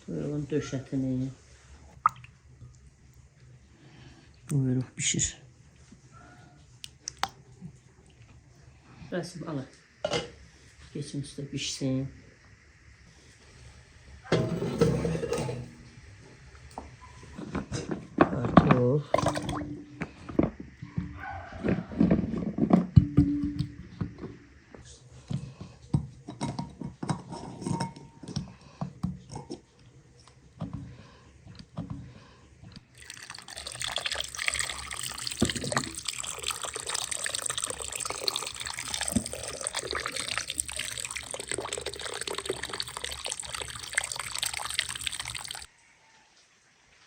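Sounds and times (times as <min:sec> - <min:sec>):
water running and splashing: 0:32.9 - 0:45.7.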